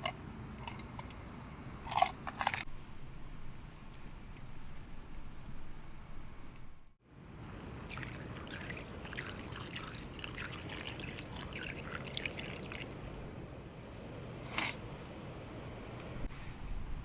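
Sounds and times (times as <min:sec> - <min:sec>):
broth bubbling in a pot: 0:07.5 - 0:13.0.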